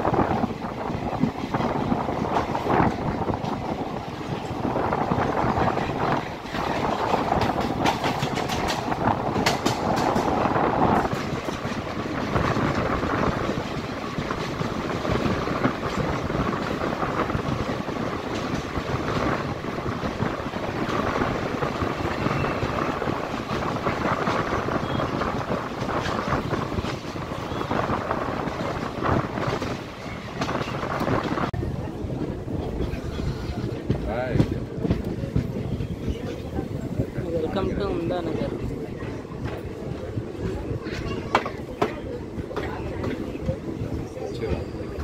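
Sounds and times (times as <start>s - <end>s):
train wheels rumbling on rails: 0.0s - 45.0s
sharp track clicks: 6.2s - 14.6s.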